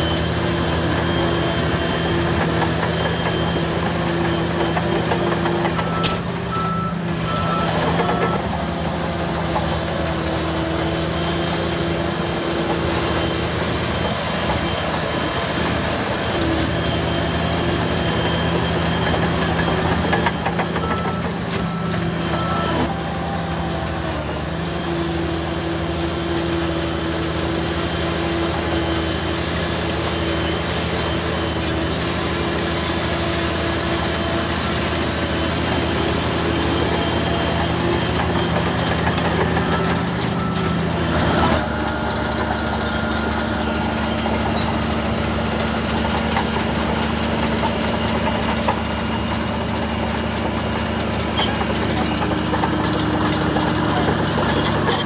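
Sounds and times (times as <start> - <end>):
reversing alarm beeping: 0.0 - 8.8, 10.9 - 24.3, 32.3 - 50.6
heavy machinery diesel engines: 0.0 - 55.0.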